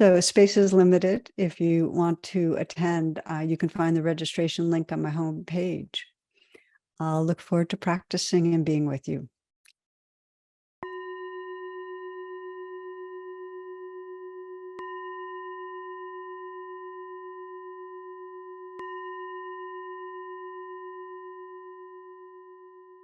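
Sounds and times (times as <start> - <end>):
meditation bell ringing: 10.8 - 23.0.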